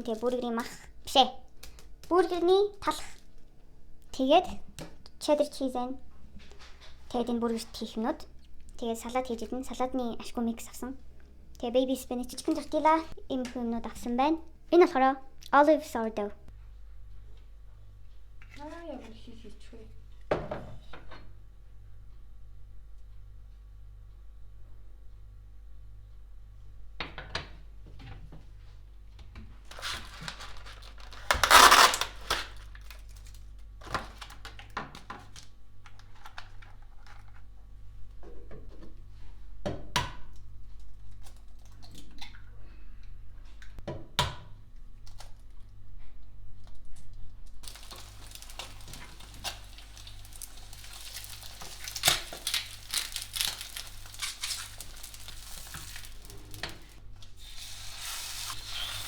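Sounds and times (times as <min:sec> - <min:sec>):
packaging crinkling and tearing: 0:29.7 - 0:34.7, 0:47.6 - 0:59.0
food sizzling in a pan: 0:47.6 - 0:56.7.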